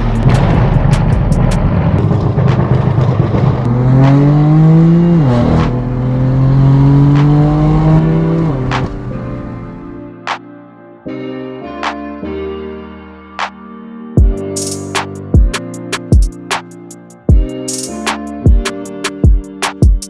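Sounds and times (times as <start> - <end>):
exhaust pops and cracks: 0.0 - 4.4
car engine accelerating: 0.0 - 10.0.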